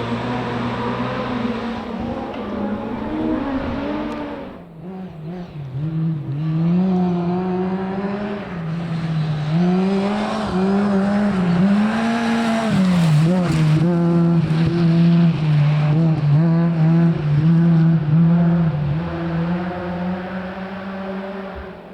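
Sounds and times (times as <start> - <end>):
rally car engine revving: 0.0 - 21.9.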